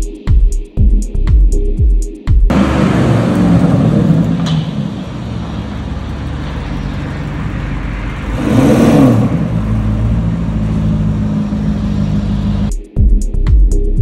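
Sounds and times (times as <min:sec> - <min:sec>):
car engine running: 0:02.5 - 0:12.7.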